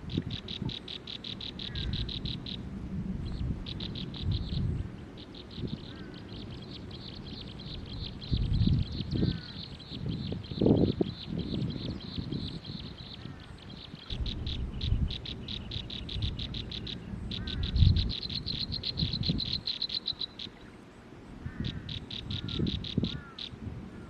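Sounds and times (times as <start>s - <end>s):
high-pitched chirping pulses: 3.3s - 20.6s.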